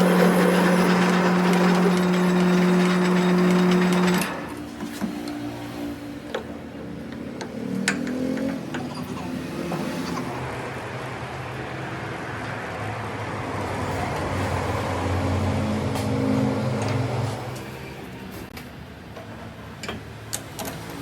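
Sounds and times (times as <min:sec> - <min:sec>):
machine humming and hissing: 0:00.0 - 0:04.6.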